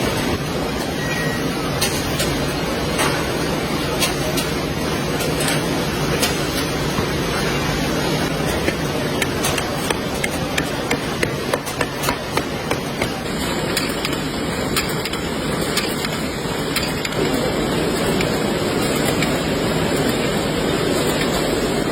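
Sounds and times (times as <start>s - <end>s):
machinery clattering: 8.2s - 14.2s
rapid sharp knocks: 8.3s - 13.2s.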